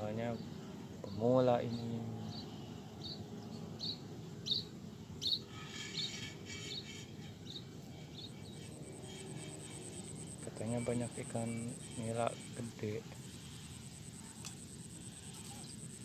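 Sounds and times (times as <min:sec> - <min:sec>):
small bird chirping: 0:02.2 - 0:16.0
high-pitched insect buzz: 0:05.2 - 0:16.0.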